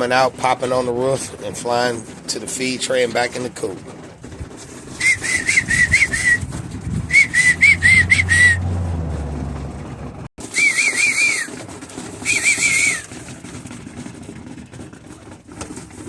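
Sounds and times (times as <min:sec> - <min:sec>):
low rumble: 0:04.2 - 0:10.3
high warbling whistle: 0:05.0 - 0:06.4, 0:07.1 - 0:08.7, 0:10.4 - 0:11.5, 0:12.2 - 0:13.1.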